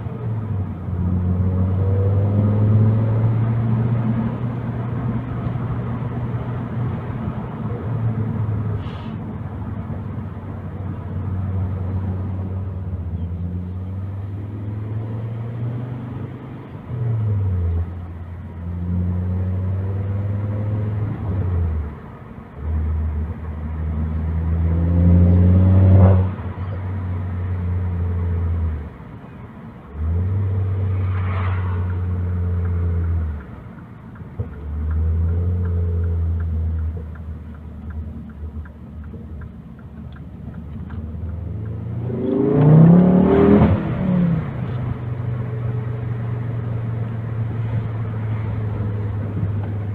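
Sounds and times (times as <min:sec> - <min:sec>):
car engine accelerating: 0:00.0 - 0:08.7, 0:22.6 - 0:28.9, 0:29.9 - 0:49.9.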